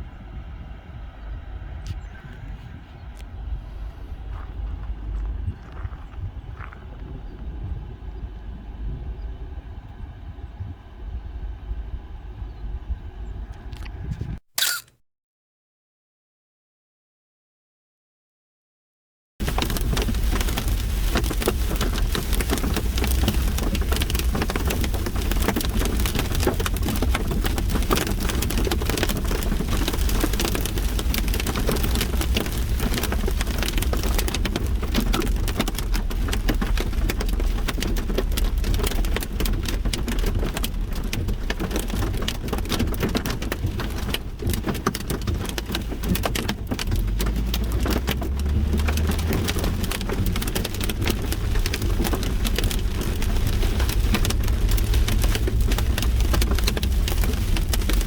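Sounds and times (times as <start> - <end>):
low rumble: 0.0 - 14.4
hail pelting in downpour: 19.4 - 58.0.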